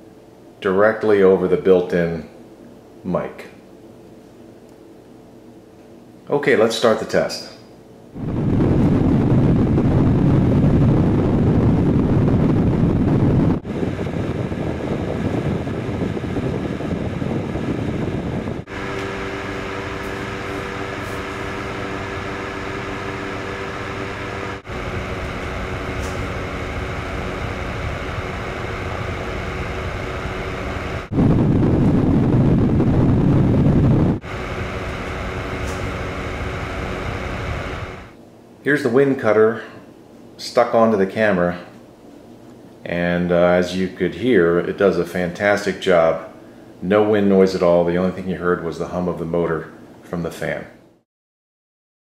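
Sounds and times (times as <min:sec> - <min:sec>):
fan motor hum: 0:00.0 - 0:51.0
wind rumble on microphone: 0:08.2 - 0:38.1.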